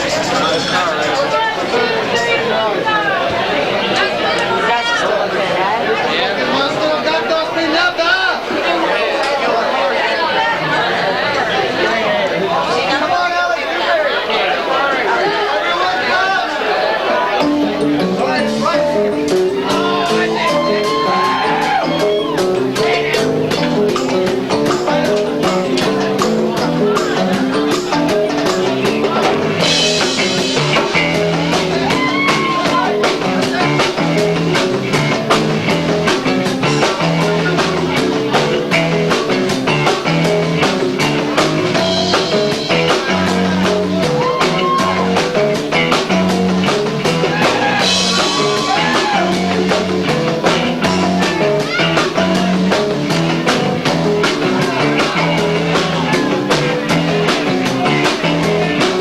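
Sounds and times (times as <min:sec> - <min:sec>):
live rock band playing: 0:17.4 - 0:59.0.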